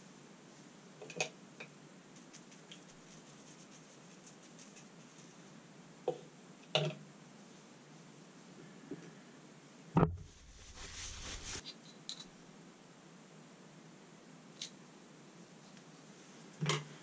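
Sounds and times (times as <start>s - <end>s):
small metal parts clicking: 11.8s - 12.3s.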